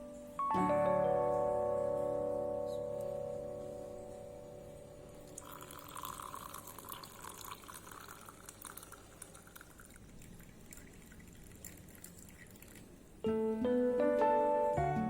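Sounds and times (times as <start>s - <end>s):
trickling and drips: 5.1s - 13.2s
liquid pouring into cup: 5.2s - 13.2s.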